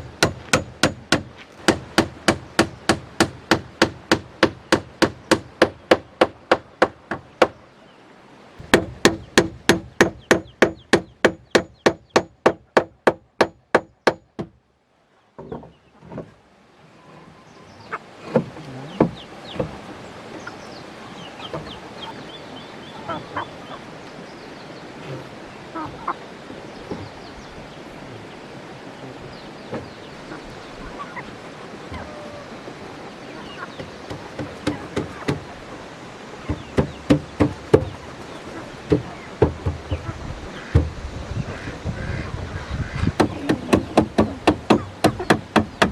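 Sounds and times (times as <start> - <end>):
steady outdoor hiss: 0.0 - 45.9
hammer driving nails into wood: 0.2 - 7.2, 8.6 - 14.5.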